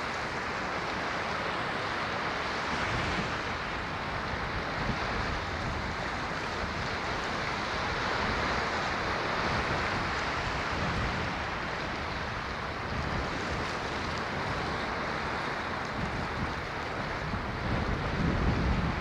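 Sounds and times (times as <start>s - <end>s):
waves breaking: 0.0s - 19.0s.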